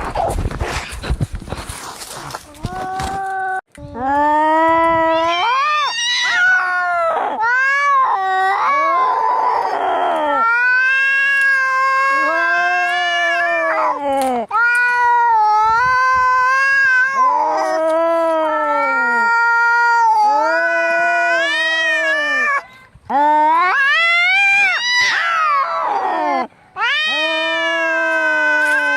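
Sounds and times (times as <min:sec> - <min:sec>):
cats yowling angrily: 0:05.1 - 0:22.6, 0:23.3 - 0:28.9.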